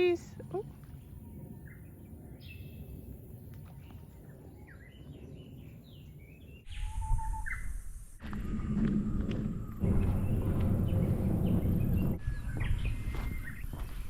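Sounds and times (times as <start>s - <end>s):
birds chirping: 0.0s - 14.0s
low outdoor rumble: 8.2s - 14.0s.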